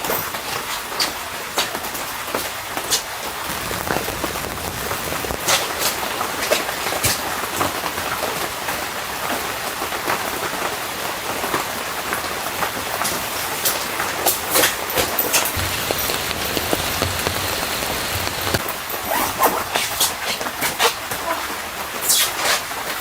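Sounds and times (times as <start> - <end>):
steady rain hiss: 3.2 - 19.8.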